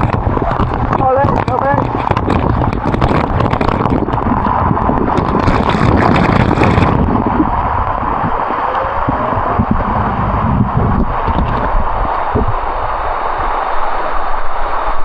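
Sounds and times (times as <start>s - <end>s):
small knocks: 0.0s - 4.5s
waterfall splashing: 0.0s - 15.0s
wind rumble on microphone: 0.0s - 15.0s.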